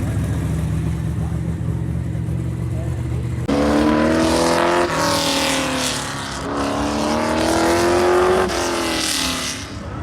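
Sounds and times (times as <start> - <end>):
race car engine accelerating: 2.8 - 10.0.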